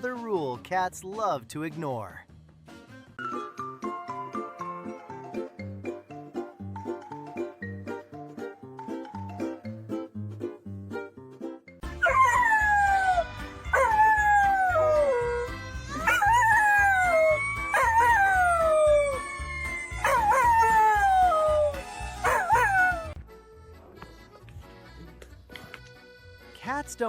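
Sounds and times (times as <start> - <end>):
background music with steady beat: 2.1 - 26.7
animal howling: 4.4 - 5.5, 12.0 - 23.2.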